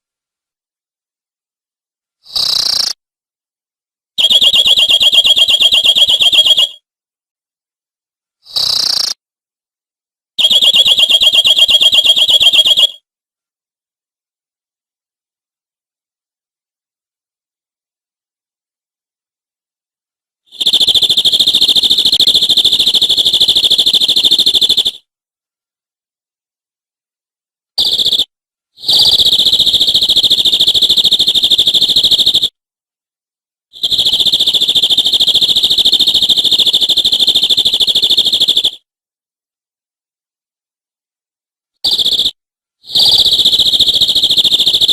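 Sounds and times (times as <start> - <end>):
canary singing rolling trills: 2.3 - 3.0, 4.2 - 6.8, 8.5 - 9.2, 10.4 - 13.0, 20.5 - 25.0, 27.8 - 32.5, 41.8 - 44.9.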